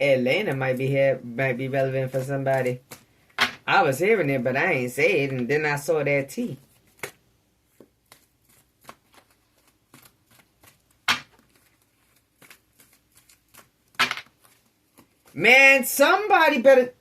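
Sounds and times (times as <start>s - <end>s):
cards shuffling: 0.4s - 3.6s, 6.6s - 15.5s.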